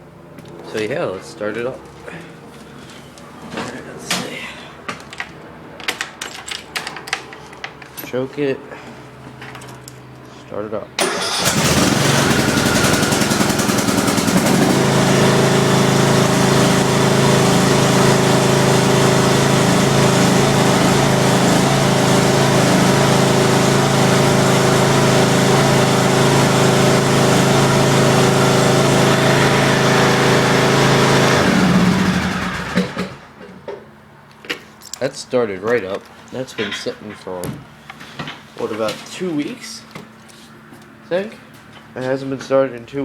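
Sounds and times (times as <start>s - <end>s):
lawn tractor engine running: 11.0s - 33.5s.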